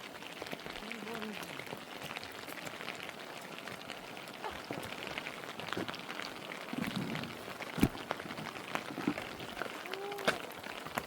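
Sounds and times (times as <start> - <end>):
raindrops clicking close by: 0.0 - 11.0
steady rain falling: 0.0 - 11.0.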